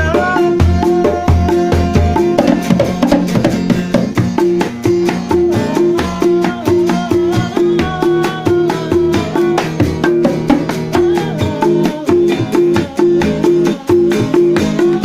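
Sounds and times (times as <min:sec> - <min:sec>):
hand drum beat: 0:00.0 - 0:15.0
plucked string melody: 0:00.0 - 0:15.0.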